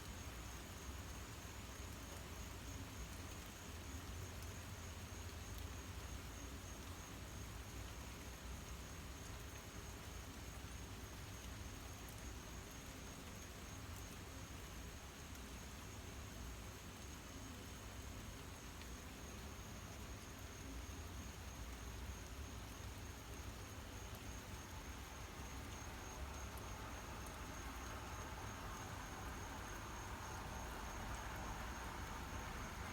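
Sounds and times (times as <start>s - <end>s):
faint low rumble and hiss: 0.0s - 32.9s
faint ticks: 0.1s - 32.9s
crickets chirring: 19.3s - 32.9s.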